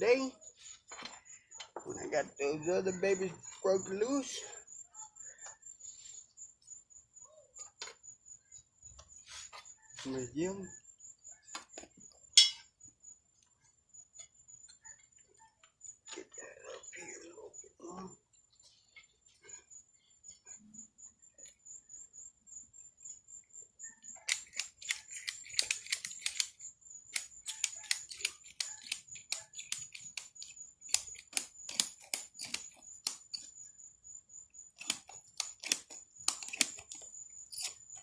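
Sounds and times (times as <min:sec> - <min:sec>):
ratchet strap clicking: 0:24.3 - 0:33.4, 0:34.8 - 0:38.0.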